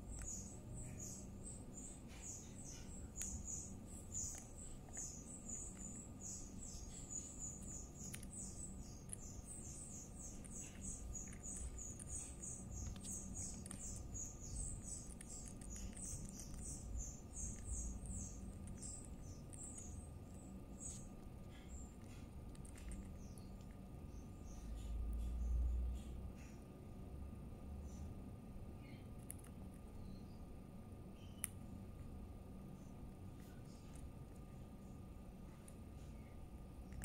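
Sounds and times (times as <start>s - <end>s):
high thin bird chirps: 0.0s - 26.6s, 31.1s - 31.5s.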